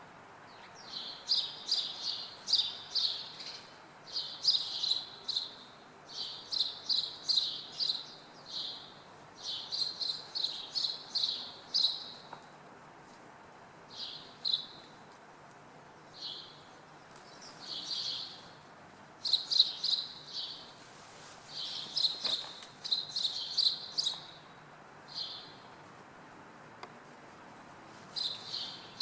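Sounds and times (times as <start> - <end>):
small birds chirping: 0.4 - 12.5, 13.9 - 15.1, 15.8 - 20.8, 21.5 - 25.8, 28.1 - 29.0.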